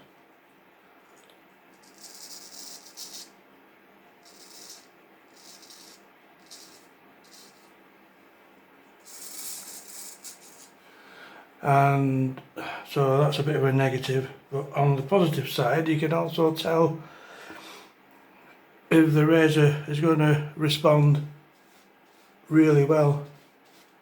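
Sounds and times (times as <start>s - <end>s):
razor scraping strokes: 1.8s - 3.4s, 4.2s - 7.8s, 9.0s - 10.8s, 21.5s - 22.6s, 23.2s - 24.0s.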